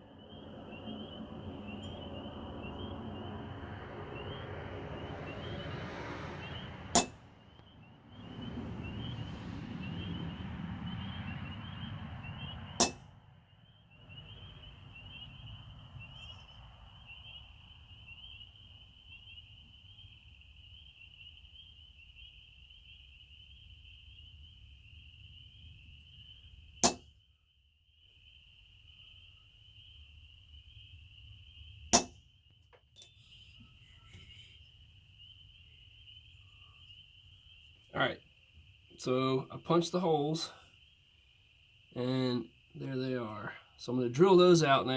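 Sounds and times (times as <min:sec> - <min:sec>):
hammer striking metal punch: 0:06.9 - 0:07.2, 0:12.8 - 0:13.0, 0:26.8 - 0:27.1, 0:31.9 - 0:32.2.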